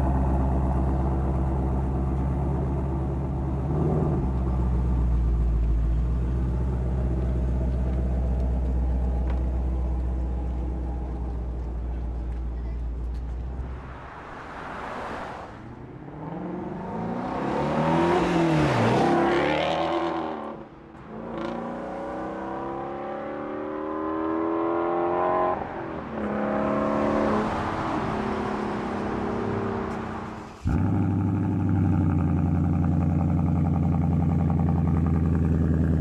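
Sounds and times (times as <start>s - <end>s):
car passing by: 12.9s - 20.3s, 21.1s - 30.9s
car engine revving: 13.2s - 36.0s.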